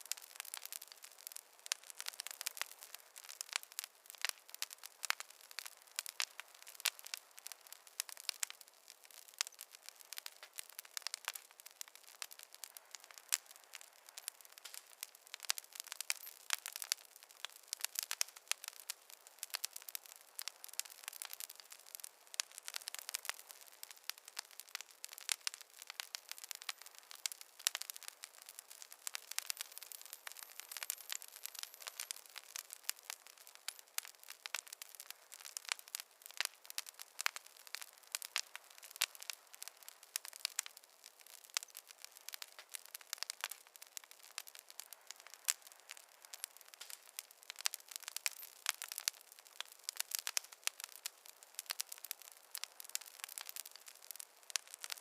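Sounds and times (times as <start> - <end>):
fire crackling: 0.0 - 55.0
soft hiss: 0.0 - 55.0.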